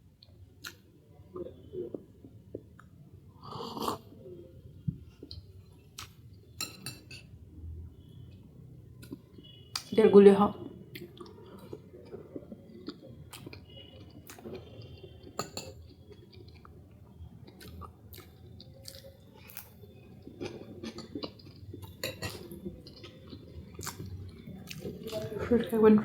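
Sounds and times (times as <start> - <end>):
close-up chewing: 10.9 - 25.4.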